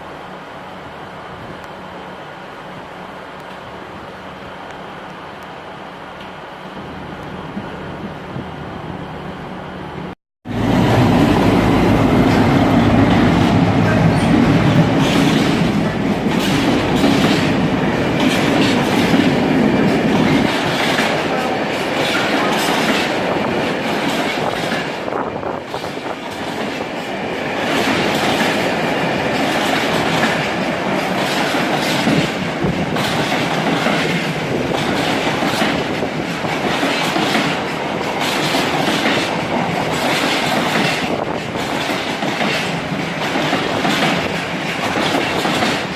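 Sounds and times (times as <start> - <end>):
train engine rumble: 0.0 - 45.9
train wheels clattering over rails: 10.4 - 45.9.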